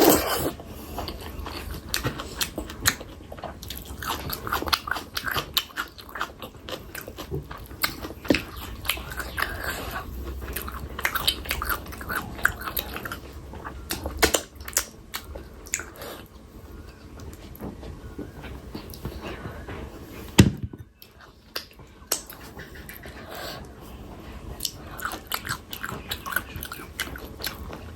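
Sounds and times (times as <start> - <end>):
wet chewing: 0.0 - 16.5, 20.9 - 27.9.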